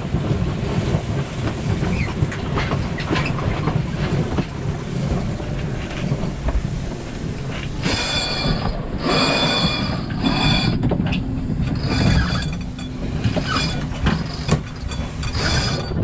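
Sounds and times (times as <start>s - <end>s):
wind rumble on microphone: 0.0s - 16.0s
winch pawls ratcheting: 5.1s - 16.0s.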